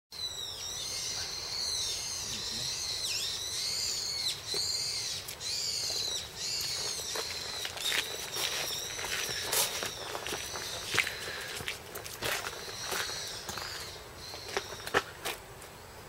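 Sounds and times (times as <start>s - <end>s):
birds calling: 0.2s - 16.0s
footsteps on a path: 4.0s - 15.8s.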